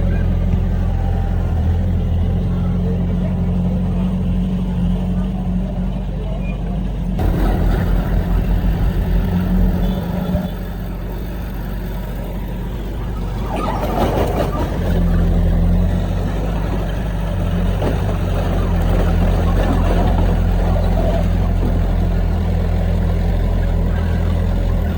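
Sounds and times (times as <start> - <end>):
diesel machinery engine throbbing: 0.0 - 24.9
noisy rush: 0.0 - 24.9.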